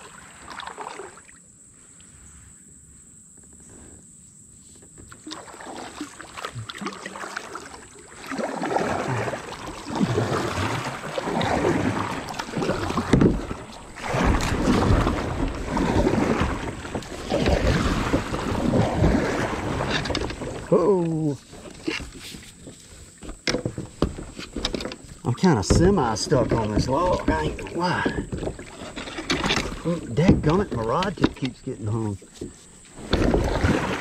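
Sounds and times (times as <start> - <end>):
kayak paddle splashing water: 0.0 - 1.4, 5.0 - 34.0
wind on microphone: 11.3 - 20.7.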